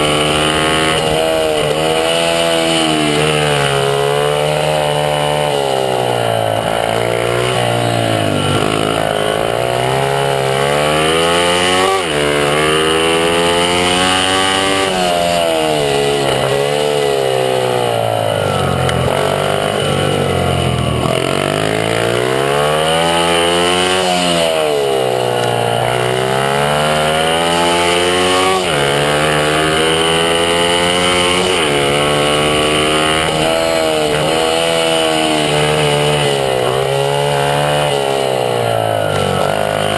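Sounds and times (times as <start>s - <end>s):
mini bike engine revving: 0.0s - 39.9s.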